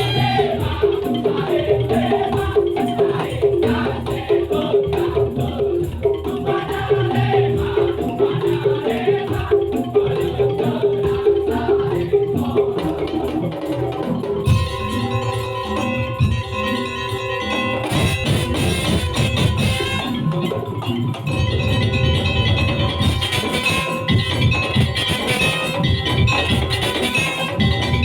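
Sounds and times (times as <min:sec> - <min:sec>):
percussion ensemble playing: 0:00.0 - 0:28.0.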